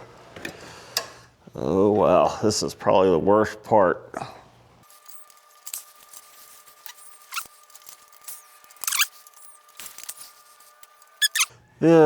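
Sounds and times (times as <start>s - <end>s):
wrench clicking and squeaking: 5.0s - 11.5s.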